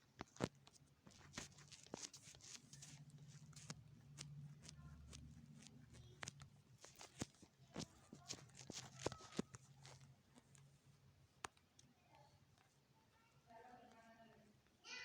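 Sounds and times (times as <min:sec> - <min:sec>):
faint clicks and taps: 0:00.0 - 0:14.8.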